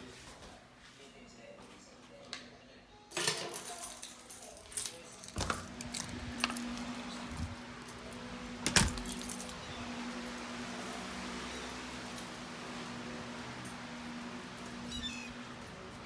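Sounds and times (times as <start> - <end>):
keys jangling: 3.1 - 16.0
handling clicks and knocks: 4.7 - 9.6.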